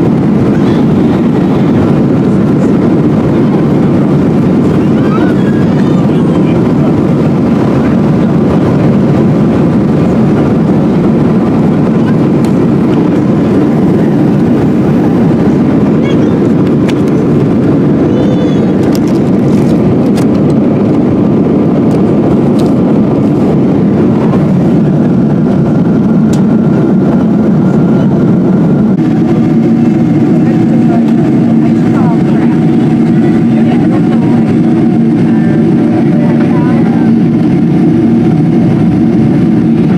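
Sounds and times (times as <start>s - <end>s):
airliner cabin roar: 0.0s - 39.9s
faint voices: 0.3s - 7.2s, 11.8s - 19.1s, 29.0s - 38.5s.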